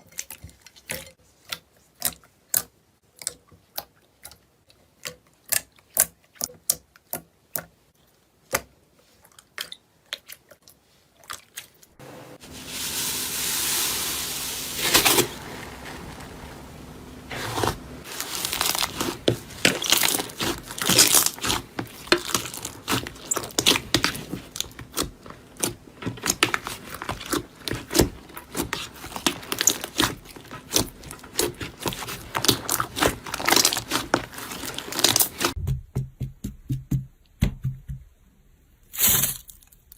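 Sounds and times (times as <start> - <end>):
scraping hiss: 12.4 - 17.7
material crunching and crackling: 12.4 - 35.6.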